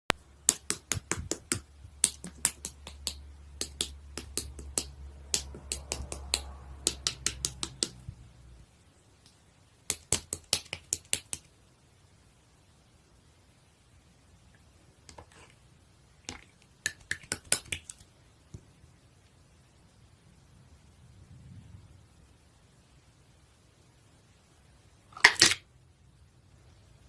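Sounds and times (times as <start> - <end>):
low hum: 19.8 - 23.2.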